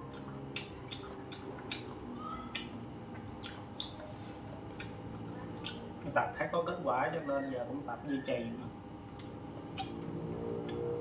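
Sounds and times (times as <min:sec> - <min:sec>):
person chewing food: 0:00.0 - 0:06.2, 0:09.1 - 0:10.0
faint steady hum: 0:00.0 - 0:11.0.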